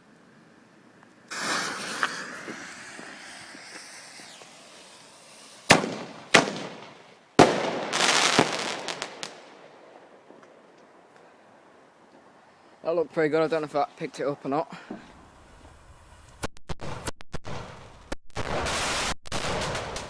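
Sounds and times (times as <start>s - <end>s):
firework launch hiss: 1.3s - 9.4s, 18.5s - 20.0s
firework bangs: 1.3s - 10.6s, 16.8s - 20.0s
firework crackling: 1.3s - 10.8s, 15.4s - 20.0s.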